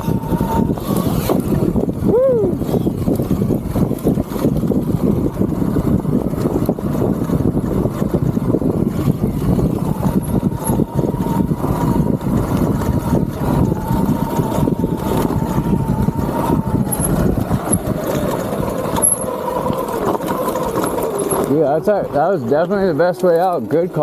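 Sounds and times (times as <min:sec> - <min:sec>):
faint electric motor whine: 0:00.0 - 0:04.7, 0:05.4 - 0:23.6
wind and bumps on microphone: 0:00.0 - 0:24.0.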